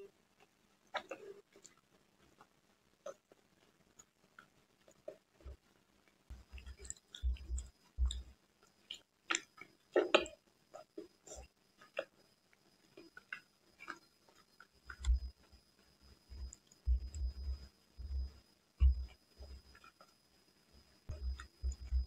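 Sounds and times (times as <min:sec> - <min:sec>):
wet chewing and lip smacks: 0:00.4 - 0:05.6, 0:06.3 - 0:15.5, 0:21.1 - 0:22.0
low thumps: 0:16.3 - 0:19.1.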